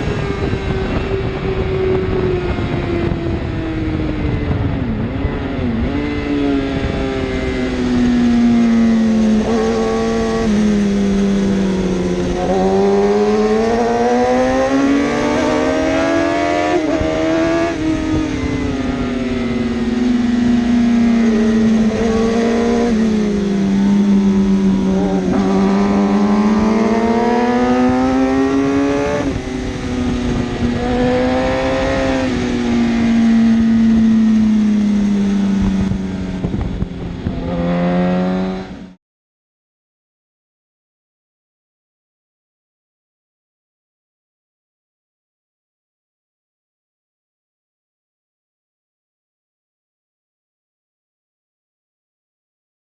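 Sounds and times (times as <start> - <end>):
racing motorcycle engines: 0.0 - 39.0.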